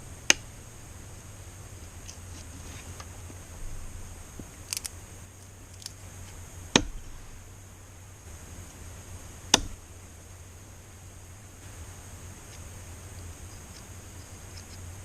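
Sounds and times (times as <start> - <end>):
sharp knocks on wood: 6.7 - 7.2, 9.5 - 9.8.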